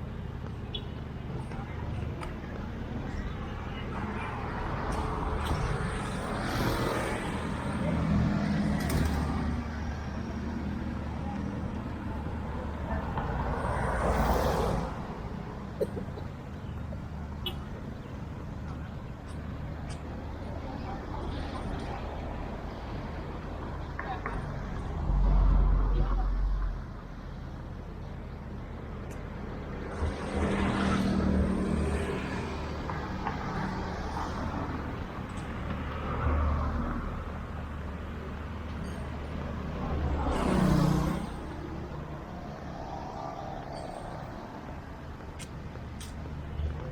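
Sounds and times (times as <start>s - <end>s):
vehicles passing: 0.0s - 46.9s
vehicle passing: 39.7s - 45.0s.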